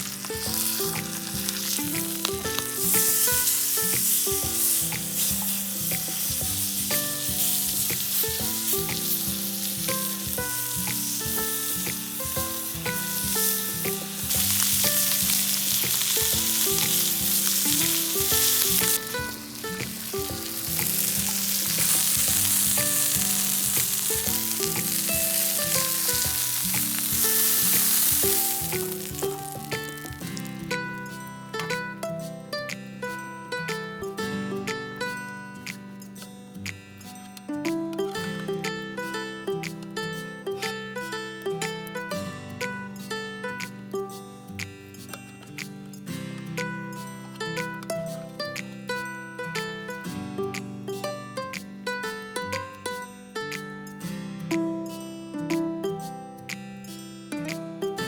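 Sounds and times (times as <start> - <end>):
food sizzling in a frying pan: 0.0 - 31.2
music with plucked notes: 0.0 - 58.0.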